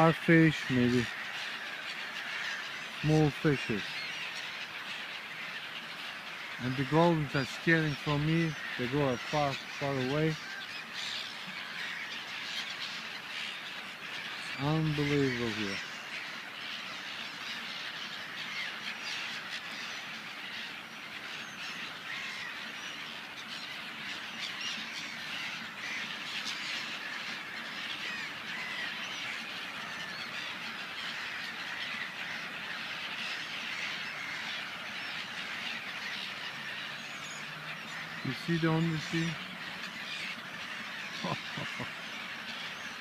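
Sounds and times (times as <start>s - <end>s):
seagulls squawking: 0.0s - 43.0s.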